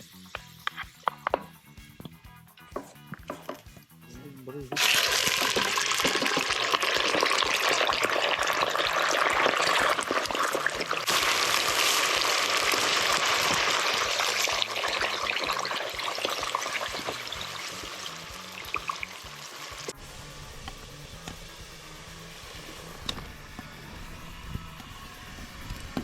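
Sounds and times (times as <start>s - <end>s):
meat sizzling in hot oil: 4.8s - 23.5s.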